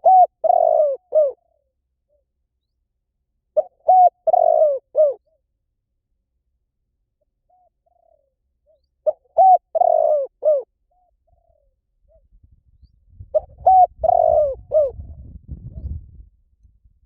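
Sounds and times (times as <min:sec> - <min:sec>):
dove cooing: 0:00.0 - 0:02.2, 0:03.6 - 0:05.4, 0:07.5 - 0:12.2, 0:13.3 - 0:16.0.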